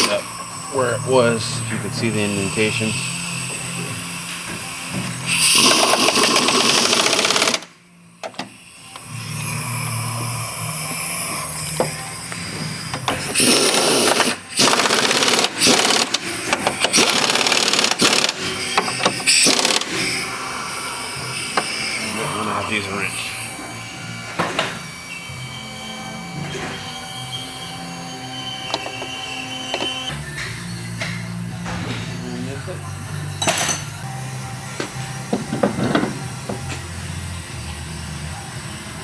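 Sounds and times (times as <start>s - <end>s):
pneumatic impact wrench: 0.0s - 0.6s, 2.1s - 22.3s.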